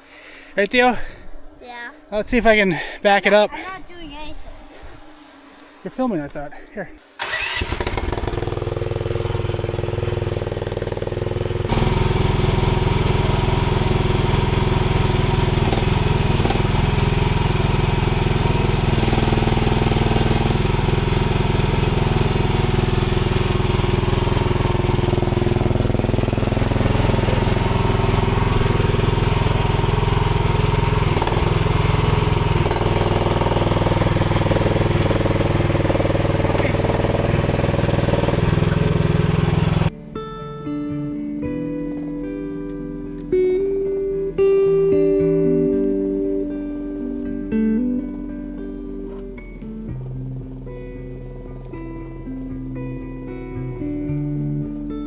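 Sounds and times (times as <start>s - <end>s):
excavator engine running: 7.2s - 39.9s.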